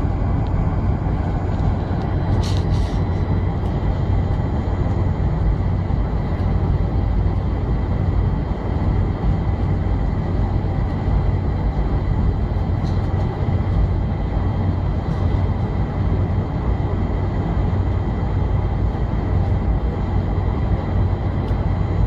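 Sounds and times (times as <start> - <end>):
airplane engines rumbling in cabin: 0.0 - 22.0.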